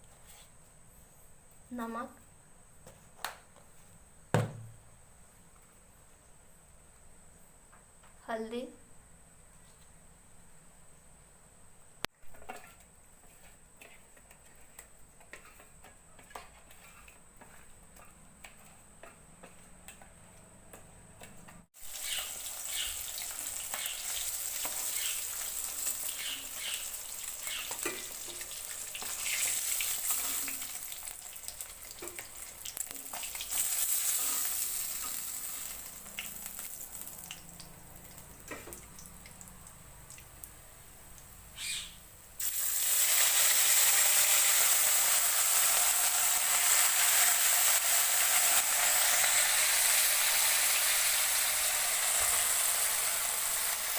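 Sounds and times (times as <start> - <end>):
fish frying in hot oil: 21.8 - 40.5, 42.4 - 53.9.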